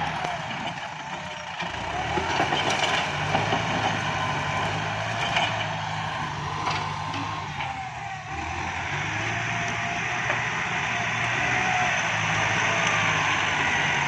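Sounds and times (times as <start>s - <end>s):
diesel tractor engine running: 0.0s - 14.0s.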